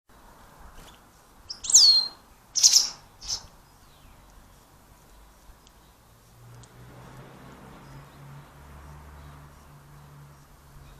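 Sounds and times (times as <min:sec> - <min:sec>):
small bird calling: 0:00.8 - 0:06.2.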